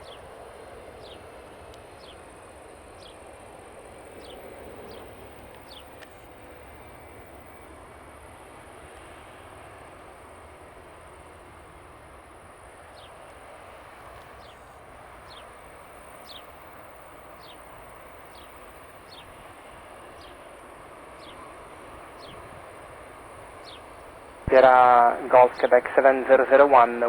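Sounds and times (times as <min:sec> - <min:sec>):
distant jet engines idling: 0:00.0 - 0:27.0
bird chirping: 0:16.2 - 0:16.5, 0:17.4 - 0:17.7, 0:23.6 - 0:23.9.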